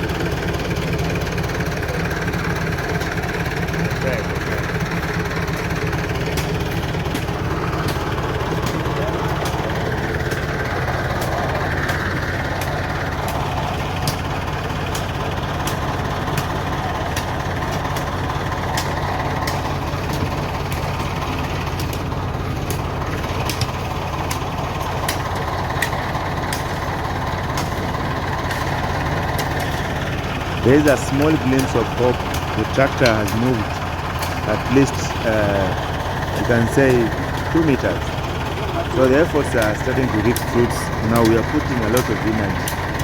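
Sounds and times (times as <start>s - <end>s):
tractor engine running: 0.0s - 43.0s
sharp clicks: 27.5s - 43.0s.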